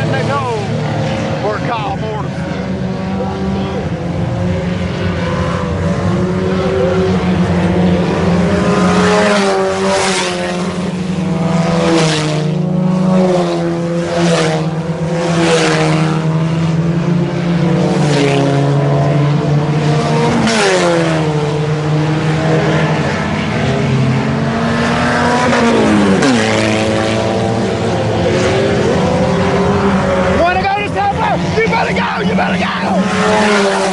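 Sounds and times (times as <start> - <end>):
cars passing by: 0.0 - 33.9
race car engines: 0.0 - 33.9.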